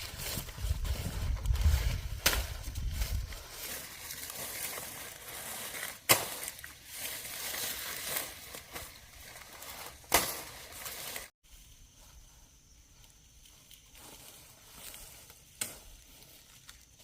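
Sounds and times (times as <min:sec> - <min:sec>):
outdoor background: 0:00.0 - 0:17.0
sharp crack: 0:02.2 - 0:02.6, 0:05.7 - 0:06.7, 0:10.0 - 0:11.3.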